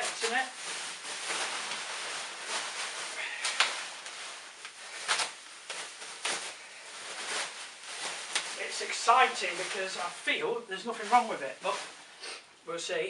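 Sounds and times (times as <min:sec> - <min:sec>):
sharp plastic crackles: 0:00.0 - 0:10.3
bubble wrap crinkling: 0:00.0 - 0:12.2.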